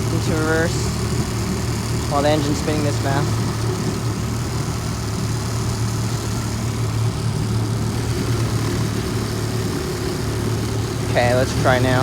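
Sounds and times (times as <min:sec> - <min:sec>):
outboard motor idling fast: 0:00.0 - 0:12.0.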